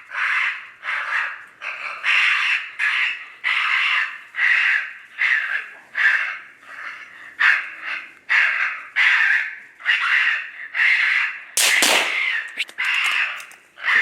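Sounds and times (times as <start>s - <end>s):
raccoon call squalling: 0.1s - 14.0s
loud sharp bang: 11.6s - 12.5s.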